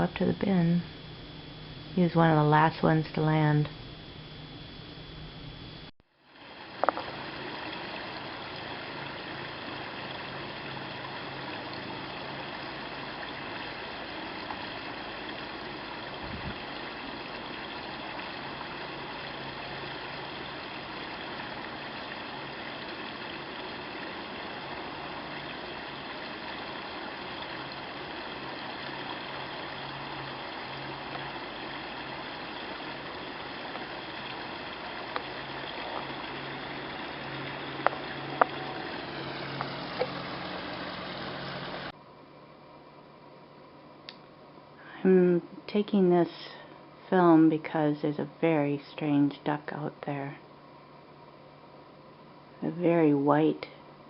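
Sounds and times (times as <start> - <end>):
low steady hum: 0.0 - 54.0
waterfall rushing: 38.0 - 41.9.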